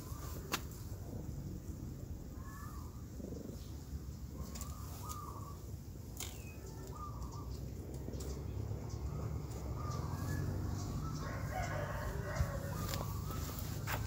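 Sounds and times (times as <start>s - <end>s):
steady low rumble: 0.0s - 4.4s
bird calling: 2.3s - 14.0s.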